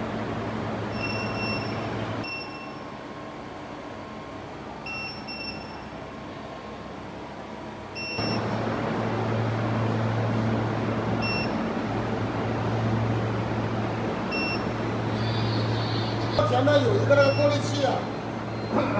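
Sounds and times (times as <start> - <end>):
furnace humming: 0.0 - 2.2, 7.9 - 18.9
fan-like rush: 8.2 - 18.9.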